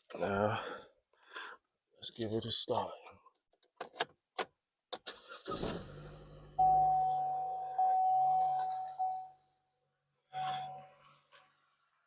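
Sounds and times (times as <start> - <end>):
car starting up: 5.0 - 9.2
dashboard warning chime: 6.6 - 9.6, 10.3 - 11.0.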